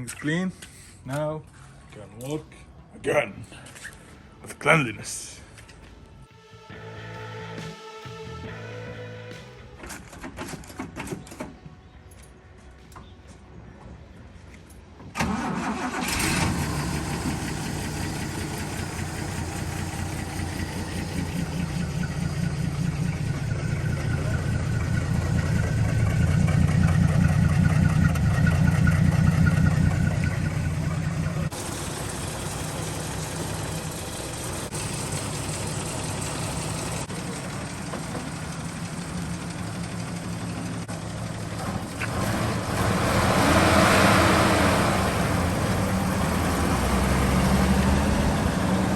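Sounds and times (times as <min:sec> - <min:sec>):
car engine running: 0:16.8 - 0:42.1.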